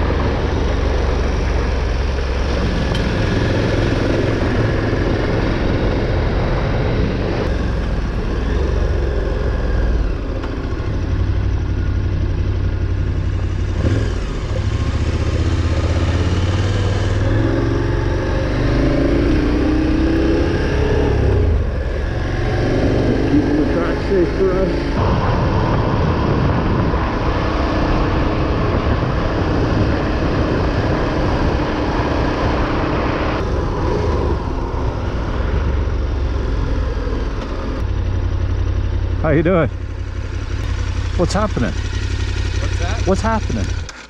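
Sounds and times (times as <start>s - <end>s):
motorcycle engine running: 0.0s - 44.0s
wind noise on microphone: 24.8s - 35.9s.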